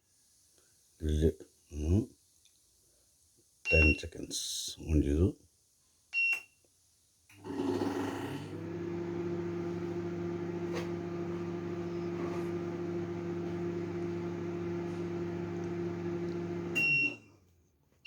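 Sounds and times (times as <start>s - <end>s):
microwave oven humming: 7.4s - 17.4s.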